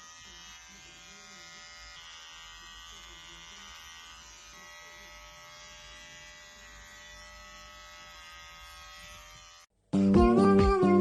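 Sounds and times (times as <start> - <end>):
small motor buzzing: 0.0 - 9.7
music with plucked guitar: 9.9 - 11.0.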